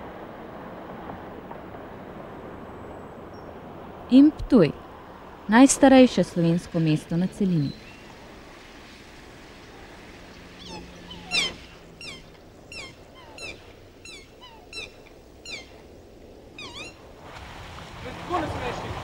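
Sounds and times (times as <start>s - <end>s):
outdoor background noise: 0.0s - 19.0s
birds calling: 5.8s - 17.2s.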